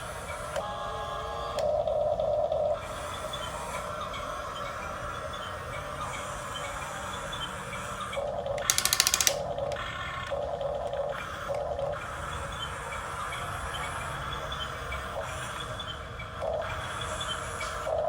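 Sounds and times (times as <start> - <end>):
small electric motors whirring: 2.8 - 9.9
loud clicks: 8.6 - 9.5.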